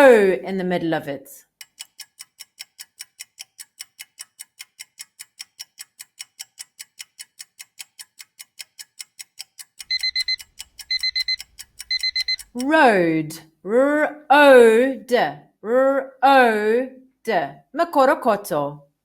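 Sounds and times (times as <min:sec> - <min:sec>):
clock ticking quickly: 0:01.4 - 0:12.9
digital alarm clock beeps: 0:09.8 - 0:12.6.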